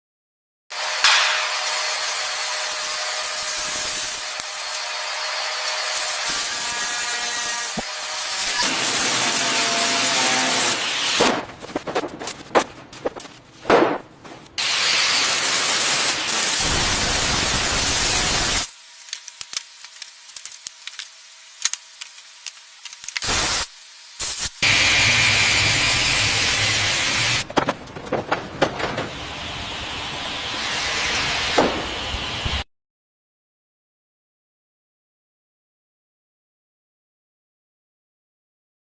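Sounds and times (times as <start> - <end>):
hissing spray: 14.6 - 27.4.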